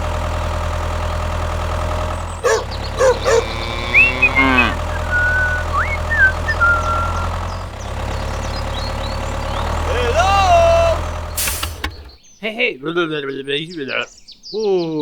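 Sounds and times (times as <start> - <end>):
low engine drone: 2.2 - 12.1
short squeaky yelps: 2.4 - 7.3
high whistled chirps: 2.5 - 7.5.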